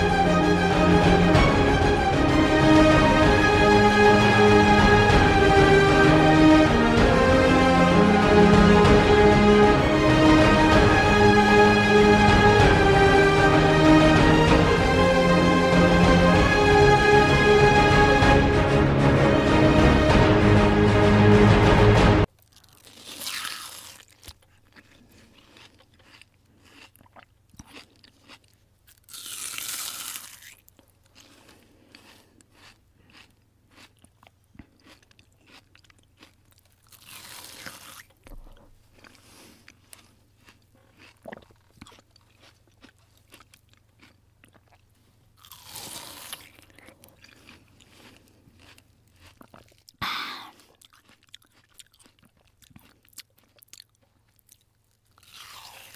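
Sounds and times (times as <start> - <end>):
crunching bites: 22.4 - 44.8, 45.4 - 55.9
chewing clicks: 24.2 - 45.7, 46.3 - 50.0, 50.6 - 55.9.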